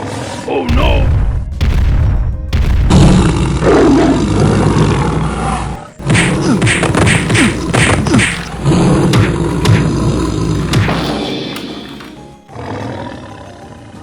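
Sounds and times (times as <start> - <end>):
cartoon tiger roar: 3.2 - 11.5
quick thumps: 6.0 - 12.4.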